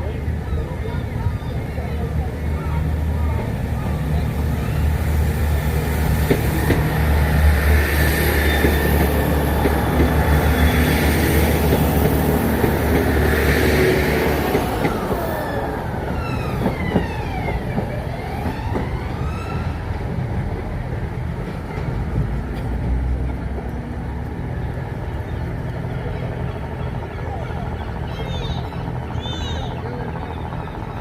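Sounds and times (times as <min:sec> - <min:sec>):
diesel train engine drone: 0:00.0 - 0:31.0.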